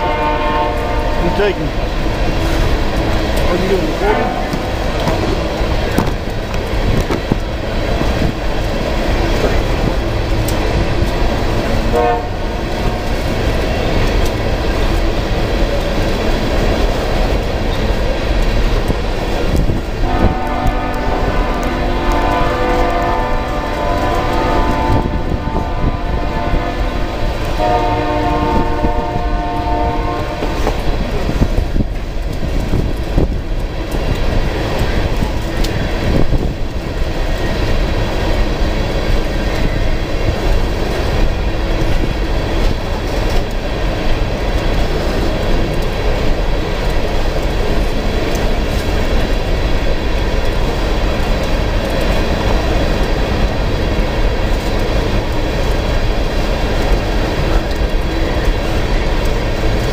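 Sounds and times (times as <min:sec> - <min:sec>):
locomotive horn chord: 0:00.0 - 0:01.8, 0:03.6 - 0:05.1, 0:11.9 - 0:13.2, 0:20.0 - 0:30.6
train wheels clacking on rail joints: 0:00.0 - 0:59.9.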